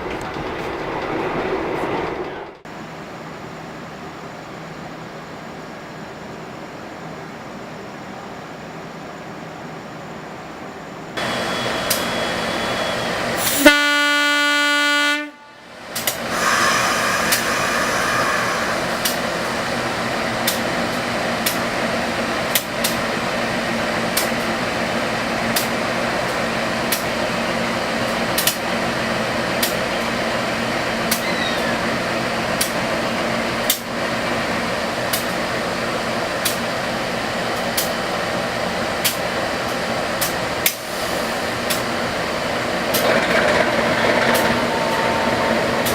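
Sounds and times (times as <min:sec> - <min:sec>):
passenger train rumbling on track: 0:00.0 - 0:45.9
train wheels clicking: 0:11.2 - 0:13.7, 0:15.9 - 0:23.2, 0:25.4 - 0:27.4, 0:28.0 - 0:28.8, 0:38.9 - 0:45.9
train horn blast: 0:13.4 - 0:15.6.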